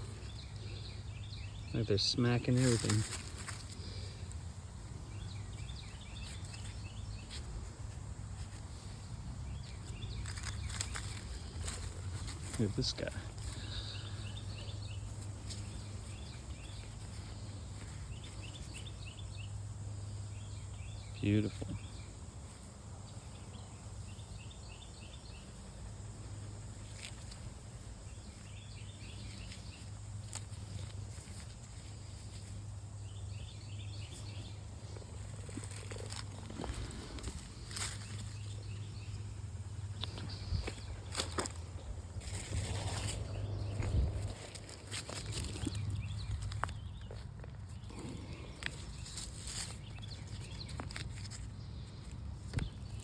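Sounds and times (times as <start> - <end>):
bird chirping: 0.0 - 53.0
steady low creek rumble: 24.6 - 50.7.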